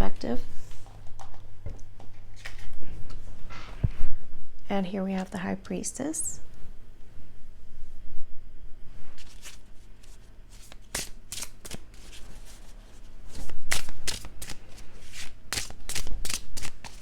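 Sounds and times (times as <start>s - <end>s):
cards being shuffled: 9.2s - 17.0s.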